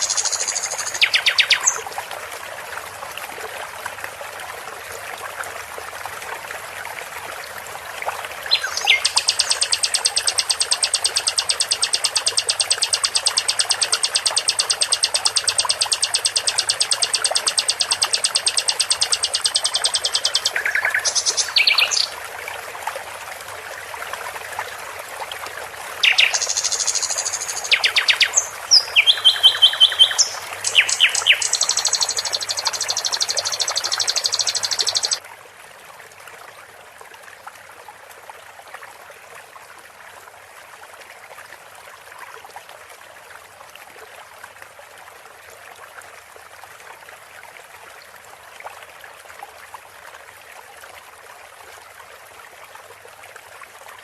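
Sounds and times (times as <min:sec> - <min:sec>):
songbird trilling and chirping: 0:00.0 - 0:01.8, 0:08.5 - 0:22.1, 0:26.0 - 0:35.2.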